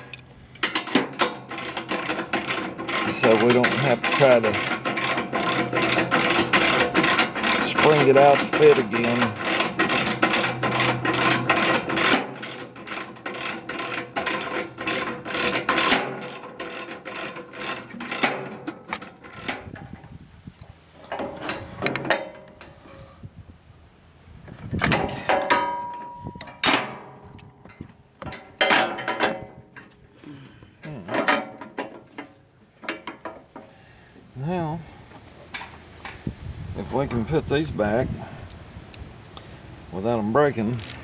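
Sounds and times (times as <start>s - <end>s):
metal clinks and knocks: 0.0s - 20.2s, 20.8s - 23.2s, 24.8s - 33.8s, 40.4s - 41.0s
ratchet wrench clicking: 0.1s - 18.3s, 40.5s - 41.0s.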